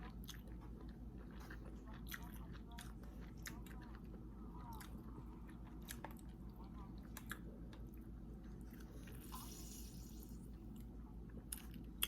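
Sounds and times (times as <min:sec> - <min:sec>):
person chewing wetly: 0:00.0 - 0:12.0.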